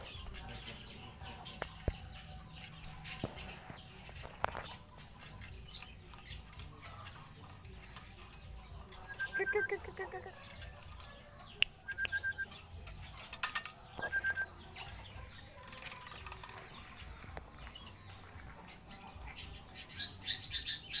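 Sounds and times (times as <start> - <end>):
clicks and rustles: 0.0 - 9.2, 9.9 - 18.8
bird chirping high notes: 11.8 - 12.7, 14.0 - 14.9.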